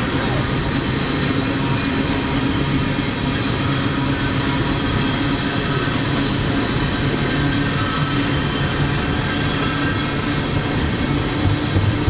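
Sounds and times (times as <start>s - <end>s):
train wheels rumbling on rail: 0.0s - 12.0s
steady hum: 9.8s - 12.0s.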